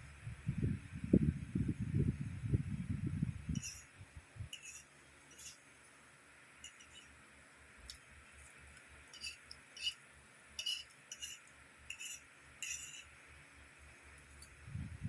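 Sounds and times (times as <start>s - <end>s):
cutlery scraping on a plate: 3.6s - 3.9s, 4.5s - 5.6s, 6.6s - 7.1s, 9.1s - 10.0s, 10.6s - 13.1s.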